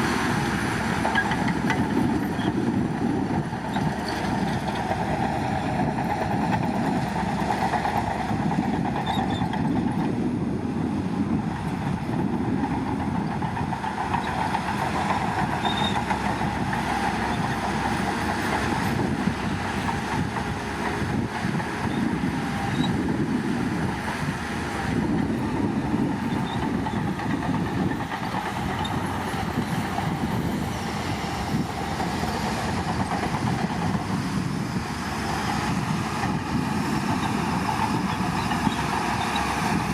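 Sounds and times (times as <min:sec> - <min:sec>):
diesel engine under load: 0:00.0 - 0:39.9
steel tracks clattering: 0:11.5 - 0:39.9.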